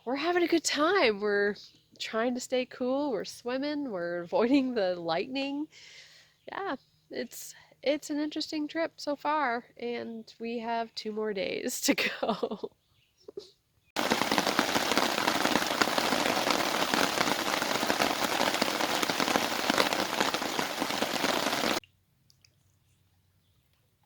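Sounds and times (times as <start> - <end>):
heavy rain pouring: 14.0 - 21.8.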